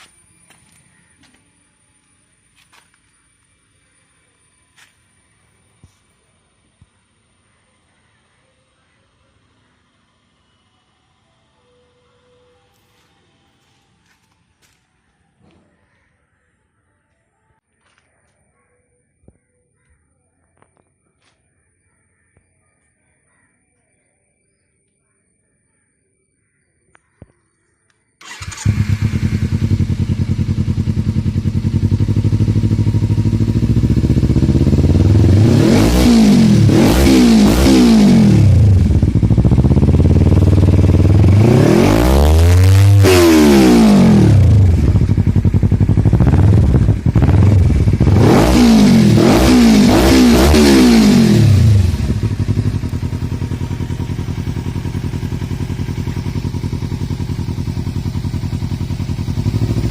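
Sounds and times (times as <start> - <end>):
motorcycle engine idling: 0.0 - 9.9, 28.2 - 59.9
motorcycle engine revving: 28.2 - 59.9.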